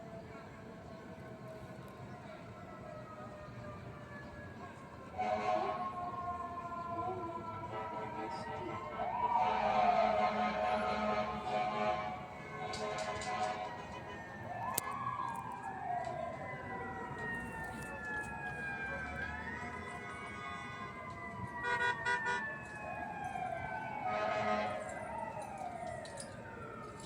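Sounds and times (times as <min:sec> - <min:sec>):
fire engine sirens wailing: 0:00.0 - 0:27.0
horn blasts: 0:05.2 - 0:05.8, 0:09.3 - 0:14.2, 0:21.6 - 0:22.5, 0:24.0 - 0:24.9.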